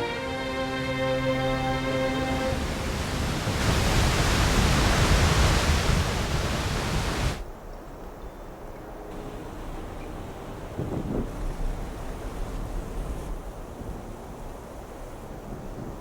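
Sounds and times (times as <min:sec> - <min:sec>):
background music: 0:00.0 - 0:02.8
steady rushing noise: 0:01.4 - 0:07.7, 0:08.7 - 0:16.0.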